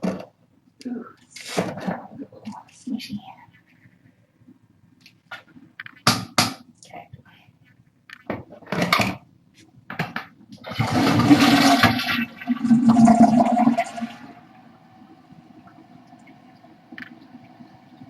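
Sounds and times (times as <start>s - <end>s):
toilet tank refilling hiss: 10.6s - 14.4s
toilet flushing: 10.6s - 14.7s.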